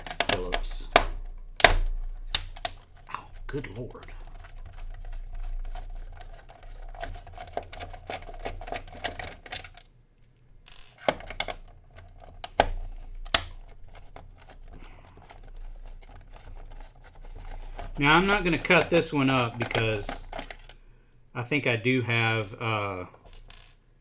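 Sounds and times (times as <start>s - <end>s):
screwdriver clicking: 0.0s - 3.0s, 10.7s - 20.8s
plastic and metal knocks: 0.0s - 9.8s, 10.7s - 20.8s.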